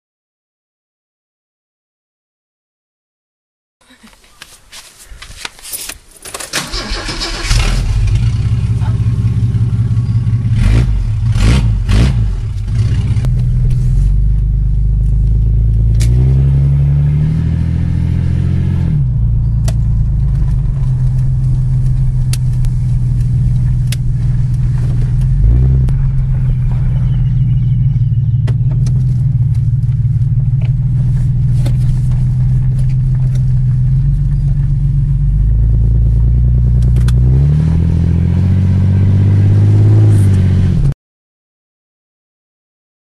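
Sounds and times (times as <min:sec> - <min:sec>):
engine cranking and starting: 0:06.2 - 0:08.8
engine idling: 0:06.6 - 0:16.0, 0:19.1 - 0:37.2
engine revving: 0:06.6 - 0:41.0.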